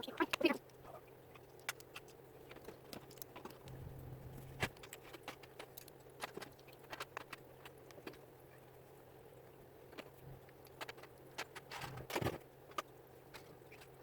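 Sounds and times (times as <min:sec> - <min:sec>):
steady low hum: 0:00.0 - 0:06.2.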